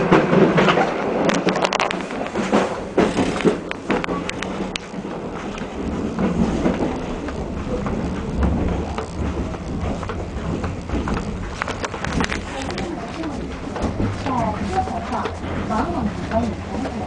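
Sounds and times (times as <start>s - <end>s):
clicks and rattles: 0.0s - 17.0s
train running noise: 0.0s - 17.0s.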